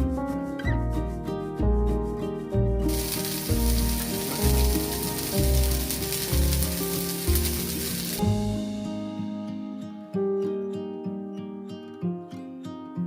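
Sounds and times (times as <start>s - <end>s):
background music with plucked notes: 0.0s - 13.0s
food sizzling in a hot pan: 2.9s - 8.8s.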